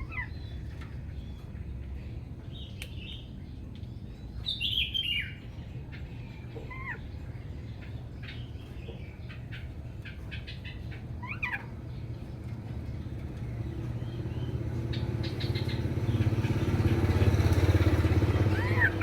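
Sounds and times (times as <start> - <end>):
vehicle engine hum: 11.2 - 19.0.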